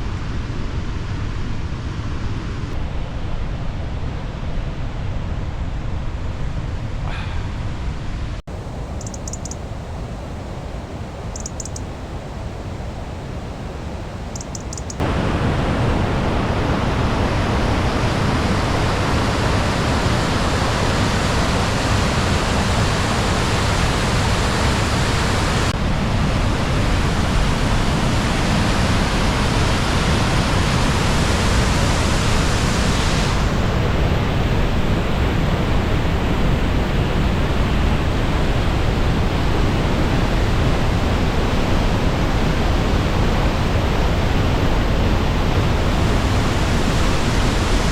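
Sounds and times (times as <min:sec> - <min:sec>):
waterfall rushing: 0:08.5 - 0:25.7, 0:41.3 - 0:47.9.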